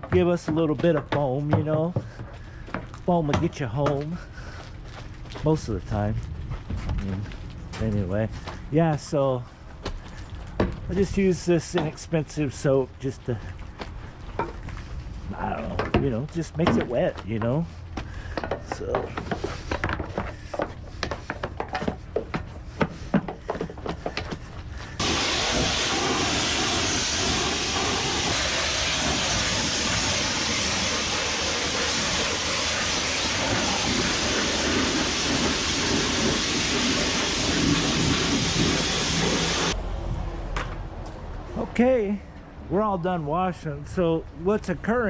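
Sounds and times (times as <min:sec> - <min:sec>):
pressure washer spraying: 0:25.0 - 0:39.8.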